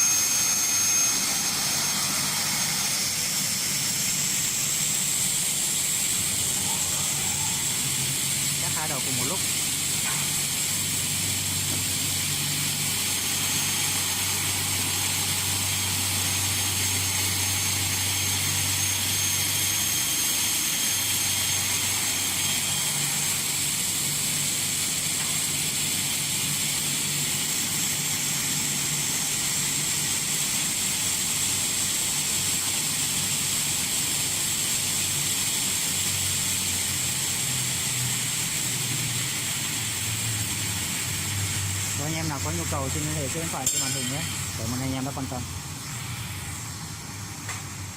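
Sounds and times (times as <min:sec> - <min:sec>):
saw blades whining: 0:00.0 - 0:25.2, 0:41.4 - 0:46.7.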